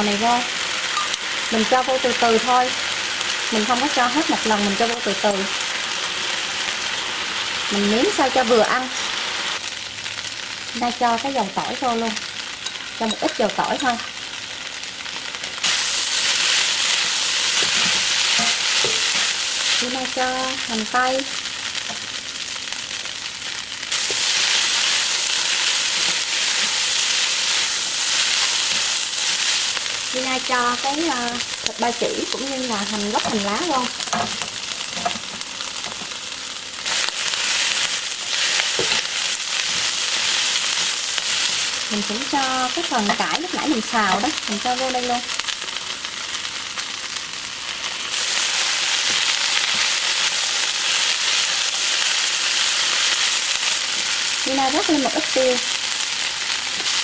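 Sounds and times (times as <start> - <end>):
food sizzling in hot oil: 0.0 - 57.0
spatula tossing in wok: 15.6 - 20.2.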